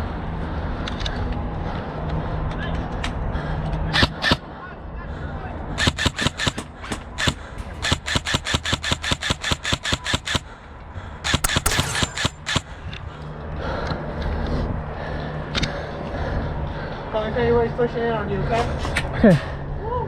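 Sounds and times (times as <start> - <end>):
airsoft rifle rapid fire: 11.4 - 12.7.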